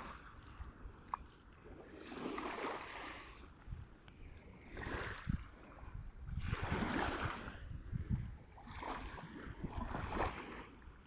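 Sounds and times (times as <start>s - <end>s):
wind buffeting microphone: 4.5s - 10.7s.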